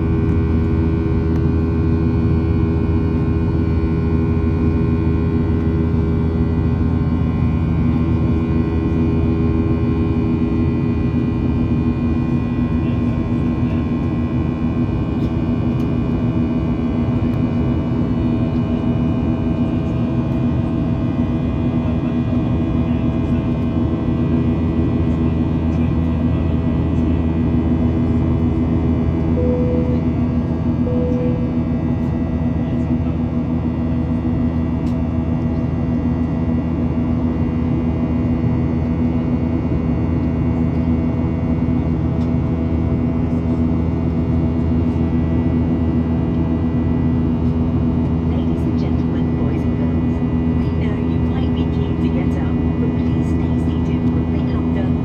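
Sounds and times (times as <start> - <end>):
airplane cabin drone: 0.0 - 55.0
short cabin tones: 29.4 - 31.7.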